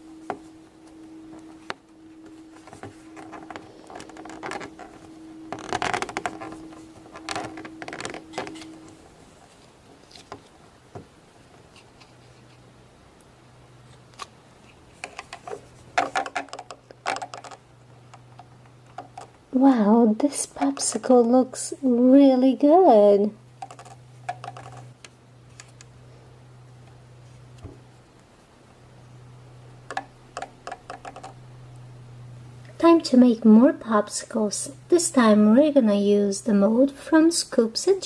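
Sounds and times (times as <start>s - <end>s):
faint steady hum: 0.0s - 38.0s
plastic mold clicking and rustling: 15.0s - 17.6s, 29.9s - 31.4s.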